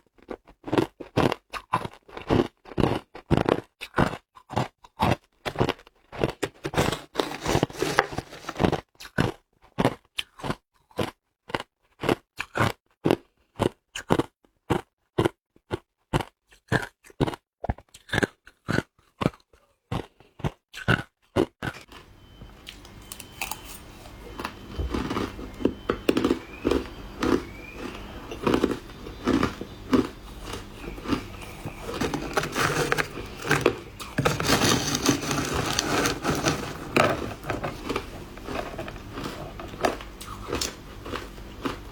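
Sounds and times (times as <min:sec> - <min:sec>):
ice crunching between teeth: 0:00.4 - 0:11.1, 0:20.8 - 0:41.9.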